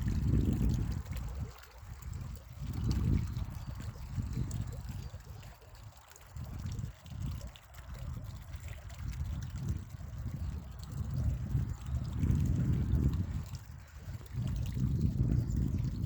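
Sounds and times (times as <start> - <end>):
spring water trickling: 0.0 - 16.0.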